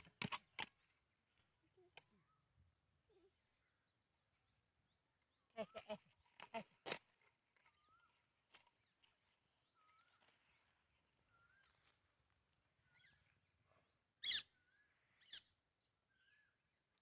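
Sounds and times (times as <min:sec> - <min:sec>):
wavering high bird call: 0:14.2 - 0:14.6.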